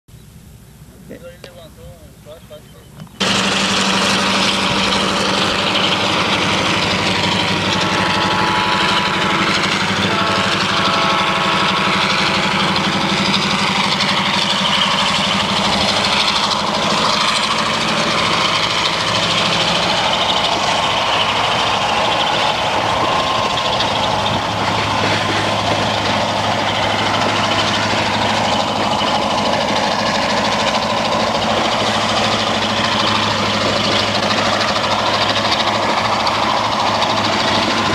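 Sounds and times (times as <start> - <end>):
diesel locomotive engine hum: 0.1 - 37.9
rolling wagons hiss: 0.6 - 37.9.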